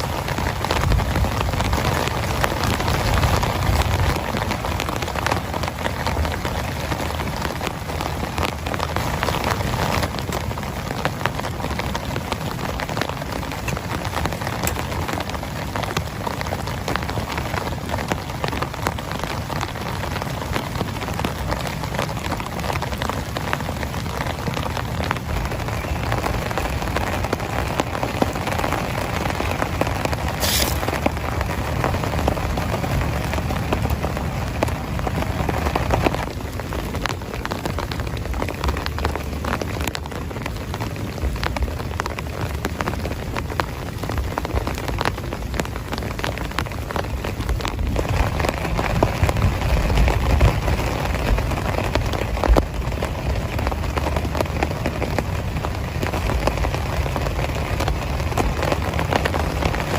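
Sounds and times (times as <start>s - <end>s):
heavy rain falling: 0.0s - 59.9s
brief sharp hiss: 30.4s - 30.8s.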